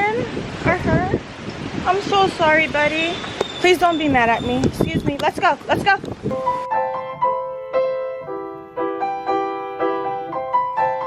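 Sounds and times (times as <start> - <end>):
piano music: 6.3 - 11.0.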